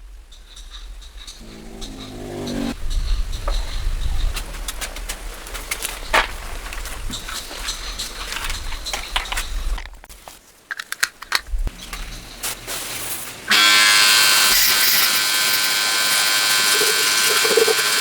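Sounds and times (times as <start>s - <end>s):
power tool buzzing: 1.4s - 2.8s, 13.5s - 18.0s.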